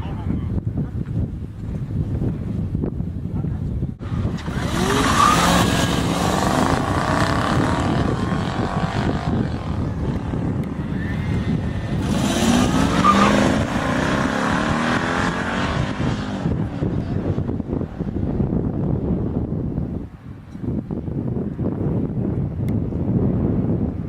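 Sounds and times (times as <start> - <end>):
drag racing cars passing: 4.0 - 18.6.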